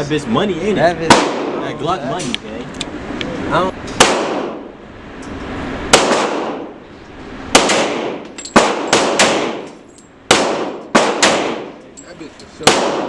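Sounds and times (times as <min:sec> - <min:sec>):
gunshots echoing: 0:01.1 - 0:01.7, 0:04.0 - 0:04.7, 0:05.9 - 0:06.8, 0:07.5 - 0:11.8, 0:12.6 - 0:13.0.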